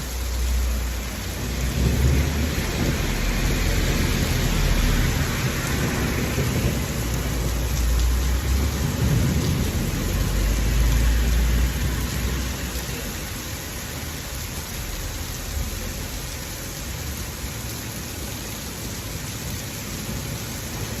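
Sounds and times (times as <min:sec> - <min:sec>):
heavy rain: 0:00.0 - 0:21.0
thunder rumbling: 0:01.1 - 0:13.1.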